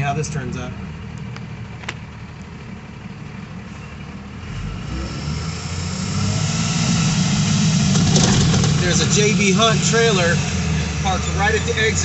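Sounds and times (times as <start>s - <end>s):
truck diesel engine idling: 0.0s - 4.4s, 7.4s - 12.0s.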